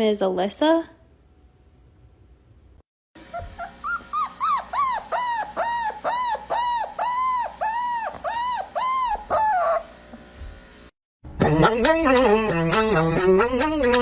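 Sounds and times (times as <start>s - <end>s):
dog whining: 3.2s - 10.0s.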